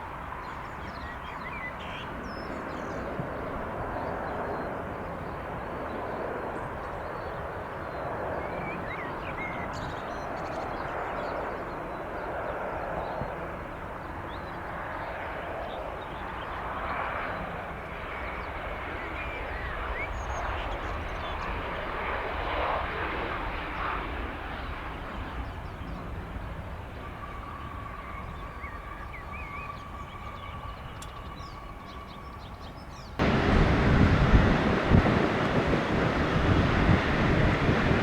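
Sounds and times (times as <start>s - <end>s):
faint engine whine: 24.6s - 38.0s
wind buffeting microphone: 33.1s - 38.0s
jet engines rushing: 33.2s - 38.0s.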